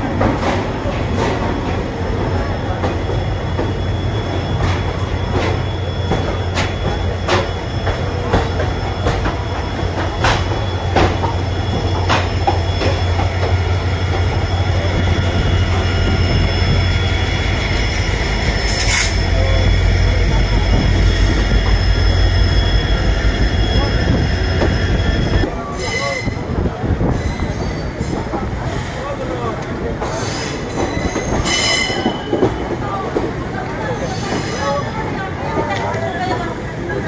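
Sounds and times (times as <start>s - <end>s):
train low rumble: 0.0s - 37.0s
high wheel squeal: 2.5s - 26.5s, 30.0s - 32.7s.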